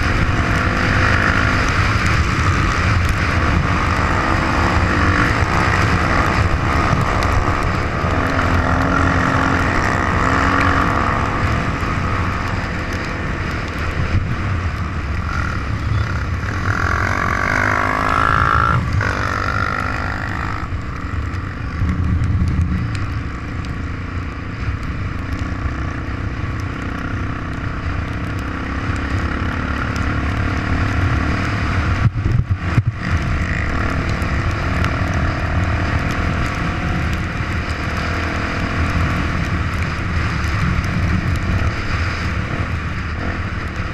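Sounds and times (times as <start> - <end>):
motorcycle engine revving: 0.0 - 43.9
heavy low rumble: 1.7 - 23.8.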